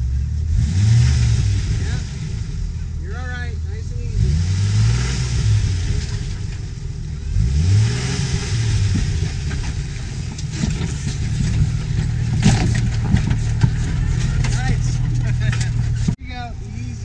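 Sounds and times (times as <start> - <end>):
engine revving and running low: 0.0 - 17.0
tyres knocking and crunching on rock: 8.8 - 16.2.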